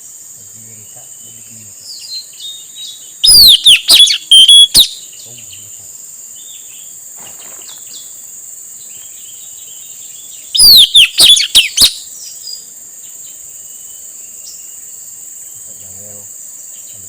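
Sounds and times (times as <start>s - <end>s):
high-pitched insect drone: 0.0s - 17.0s
parrot whistled calls: 3.2s - 5.0s, 10.6s - 12.0s.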